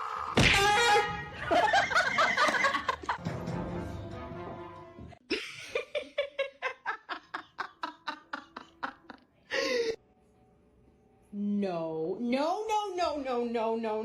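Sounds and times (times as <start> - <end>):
person laughing: 5.3 - 10.0.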